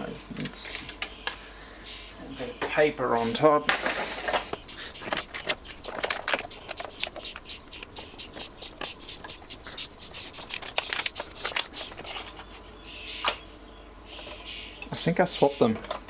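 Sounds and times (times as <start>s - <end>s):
paper rustling and crinkling: 3.6s - 6.9s, 10.1s - 12.6s.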